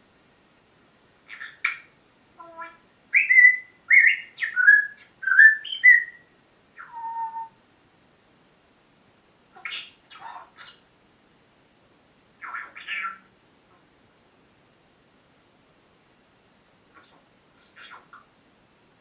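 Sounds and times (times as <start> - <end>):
parrot rough calls: 12.4 - 13.9, 16.9 - 18.3.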